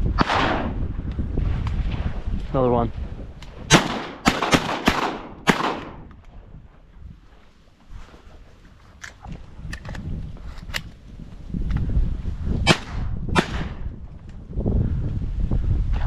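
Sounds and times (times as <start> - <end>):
shotgun shots: 0.2 - 0.8, 3.7 - 6.0, 12.7 - 13.8.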